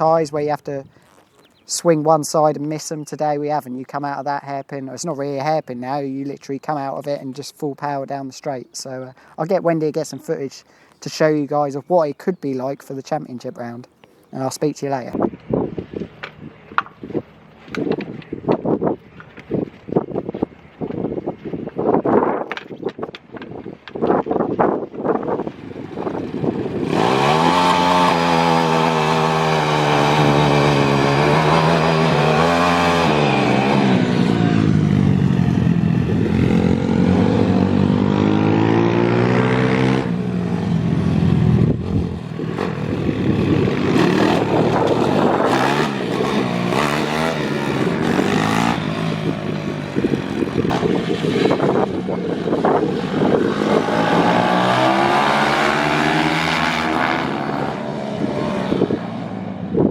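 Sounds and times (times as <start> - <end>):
pit bike engines at full throttle: 15.1 - 59.9.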